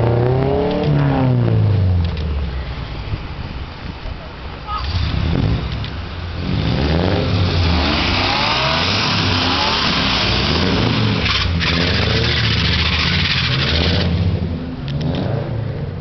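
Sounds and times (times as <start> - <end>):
car engine revving: 0.0 - 2.3, 4.7 - 16.0.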